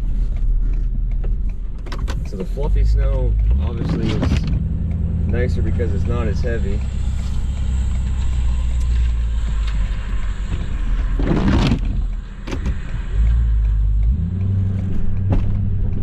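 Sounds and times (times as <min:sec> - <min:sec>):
diesel engine running under load: 0:02.3 - 0:12.4.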